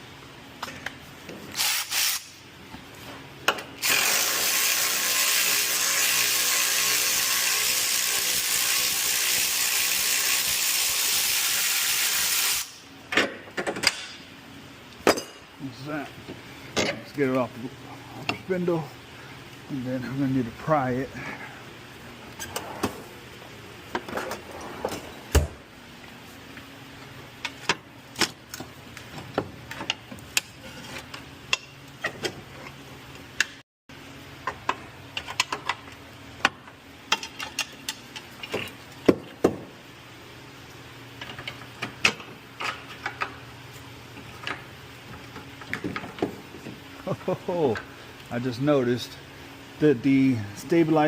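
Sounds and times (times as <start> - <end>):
steady low hum: 12.7 - 51.0.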